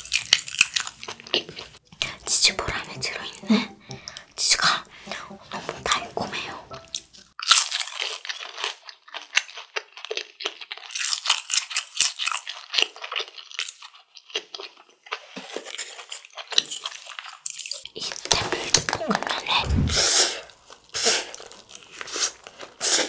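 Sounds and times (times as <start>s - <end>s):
crunchy chewing: 0.0s - 1.8s, 7.4s - 19.4s, 20.4s - 23.0s.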